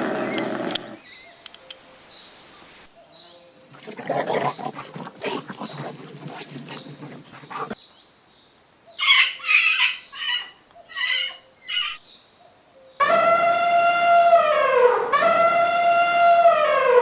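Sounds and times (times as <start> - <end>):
farm animal calls: 3.6 - 7.8, 9.0 - 12.0.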